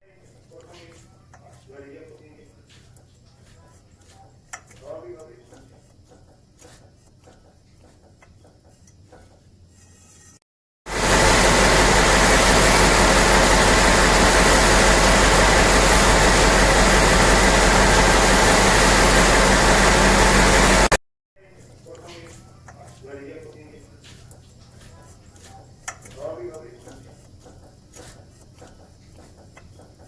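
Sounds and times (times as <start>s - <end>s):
haul truck running: 10.9s - 21.0s.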